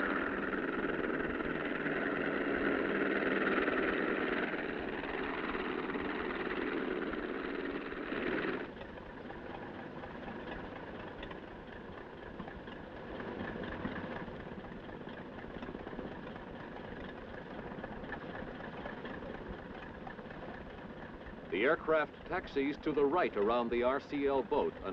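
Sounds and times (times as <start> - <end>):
propeller engine running: 0.0 - 24.9.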